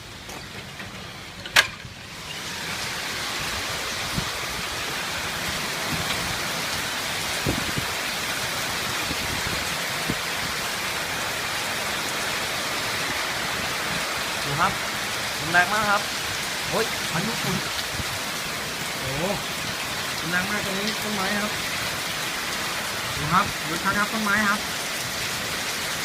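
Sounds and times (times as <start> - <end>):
heavy rain: 0.0 - 26.0
strong wind: 1.6 - 20.2.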